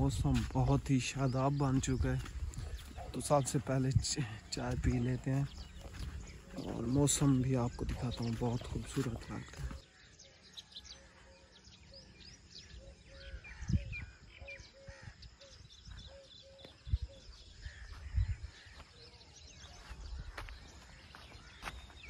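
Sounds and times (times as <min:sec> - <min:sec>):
birds chirping and calling: 0:00.0 - 0:22.0.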